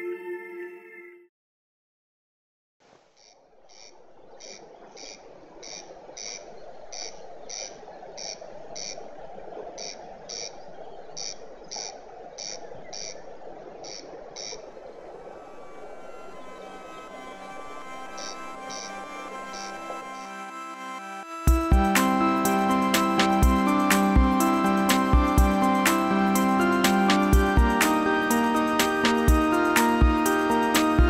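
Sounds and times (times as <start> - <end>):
music: 0.0 - 1.3, 15.4 - 31.0.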